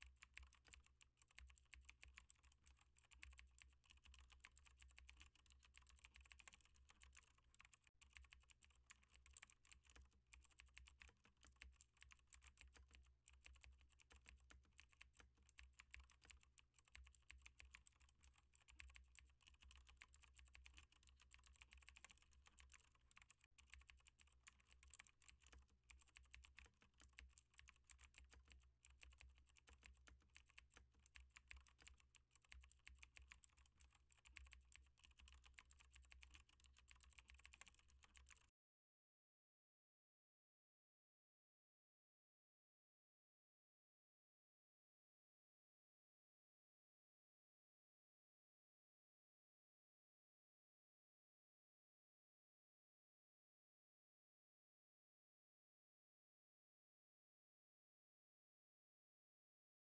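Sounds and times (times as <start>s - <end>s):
rapid typing on keyboard: 0.0s - 38.5s.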